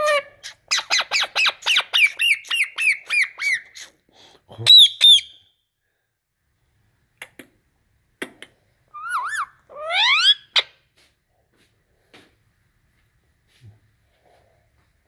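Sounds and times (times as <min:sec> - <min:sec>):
parakeet whistling: 0:04.7 - 0:05.4, 0:08.9 - 0:10.7.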